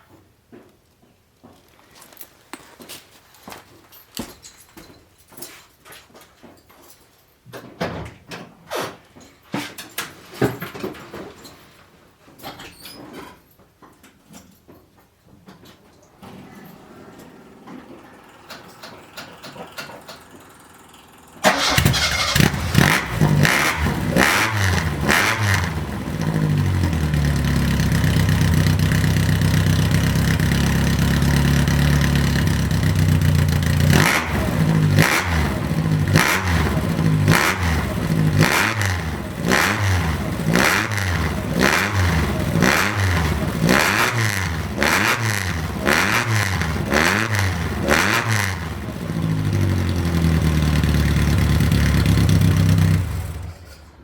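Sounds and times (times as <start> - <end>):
engine revving: 16.2 - 53.8
car engine running: 16.6 - 53.6.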